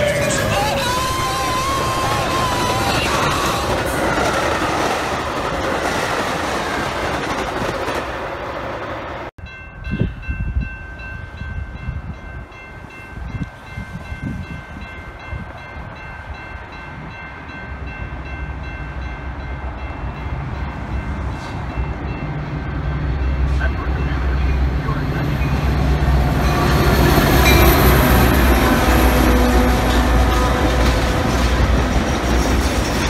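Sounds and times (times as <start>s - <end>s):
diesel train approaching: 0.0s - 33.0s
train cars rolling on rails: 0.0s - 33.0s
wind gusts on microphone: 9.4s - 17.5s.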